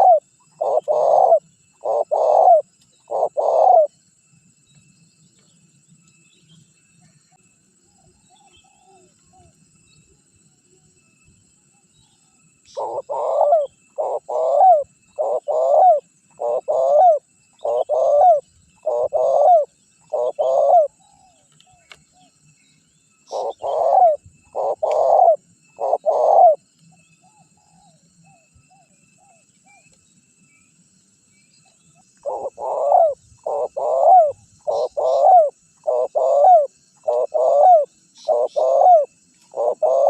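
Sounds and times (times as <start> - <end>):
dove cooing: 0.0 - 3.9, 12.7 - 21.9, 23.3 - 26.6, 32.2 - 40.0
small birds chirping: 0.0 - 40.0.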